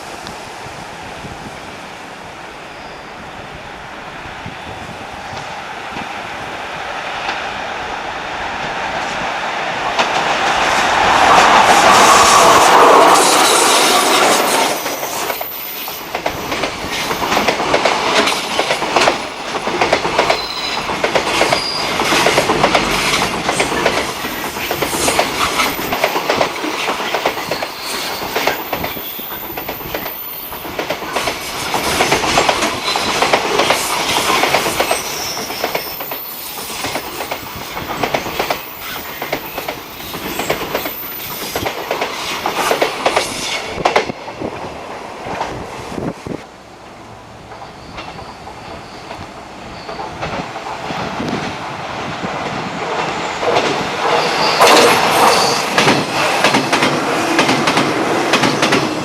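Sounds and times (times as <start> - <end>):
train wheels clattering: 8.6 - 44.6, 52.2 - 59.0.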